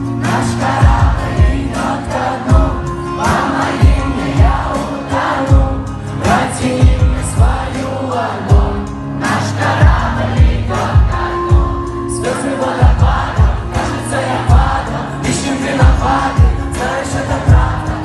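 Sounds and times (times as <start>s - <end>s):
crowd singing along: 0.0s - 18.0s
pop-rap song over speakers: 0.0s - 18.0s.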